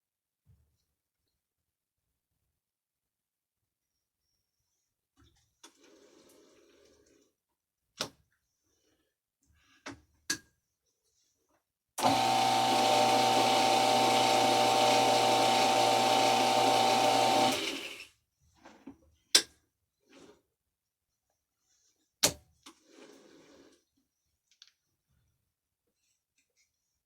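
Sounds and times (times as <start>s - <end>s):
metal lathe humming: 12.0s - 18.0s.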